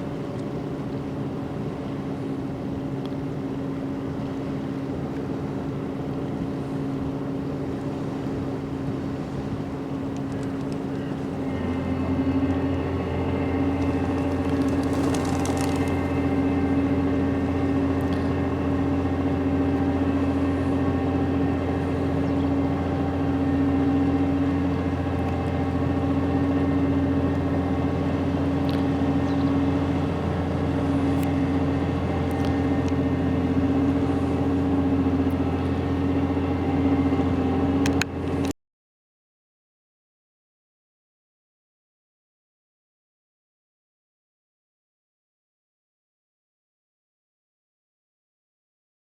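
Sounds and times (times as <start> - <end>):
engine running: 0.0 - 38.6.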